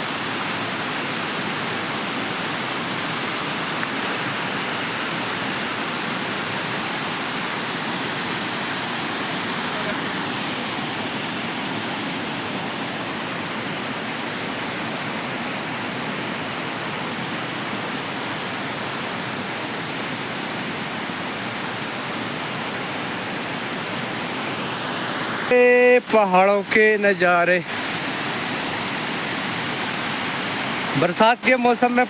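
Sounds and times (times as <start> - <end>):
flowing water rushing: 0.0 - 32.0
man speaking loudly: 25.5 - 27.6, 31.0 - 32.0.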